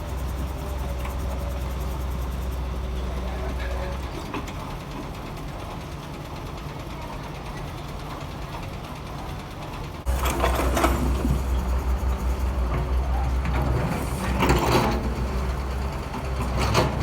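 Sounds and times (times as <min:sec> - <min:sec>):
heavy machinery engine rattling: 0:00.0 - 0:17.0
clattering: 0:16.2 - 0:17.0.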